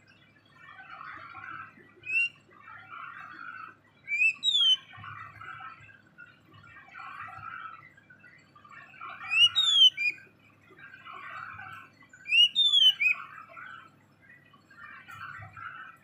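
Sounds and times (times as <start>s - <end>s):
loud whistled bird notes: 2.0s - 2.4s, 4.1s - 5.0s, 9.2s - 10.3s, 12.2s - 13.3s
songbird chattering warble: 2.0s - 2.4s, 3.0s - 5.0s, 9.0s - 10.2s, 12.2s - 13.4s.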